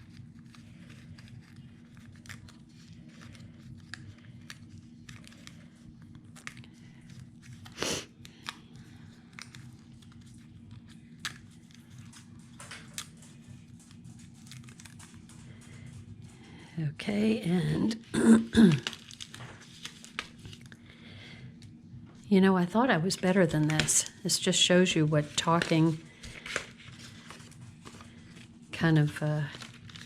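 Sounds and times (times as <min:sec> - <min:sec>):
paper ticks and rustles: 0:00.0 - 0:16.7, 0:18.8 - 0:20.8, 0:25.1 - 0:30.0.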